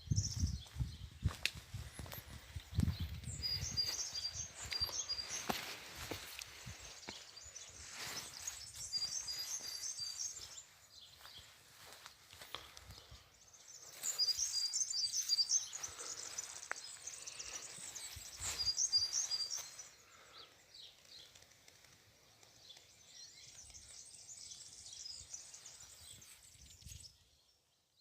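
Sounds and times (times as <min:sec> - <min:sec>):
flock of small birds chirping: 0:00.0 - 0:27.8.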